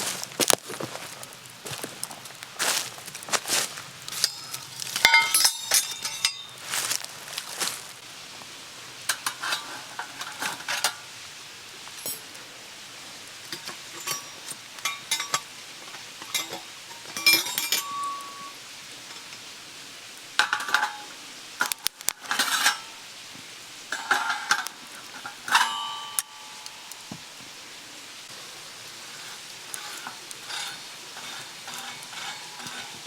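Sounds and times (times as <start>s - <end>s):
metal utensils scraping griddle: 3.5s - 7.8s, 8.9s - 11.3s, 13.2s - 19.5s, 20.4s - 23.2s, 23.8s - 27.2s, 28.3s - 33.0s.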